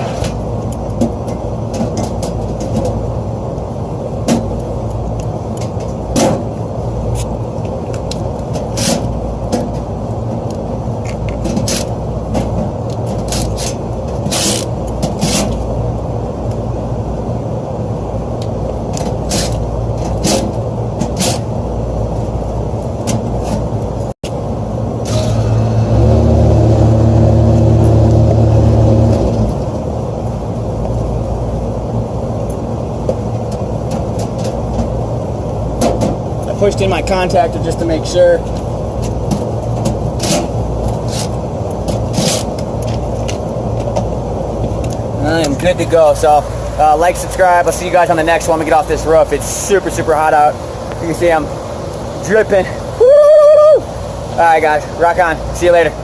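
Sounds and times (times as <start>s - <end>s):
low machinery rumble: 15.6s - 41.9s
loud steady low hum: 23.8s - 33.0s, 44.1s - 53.0s.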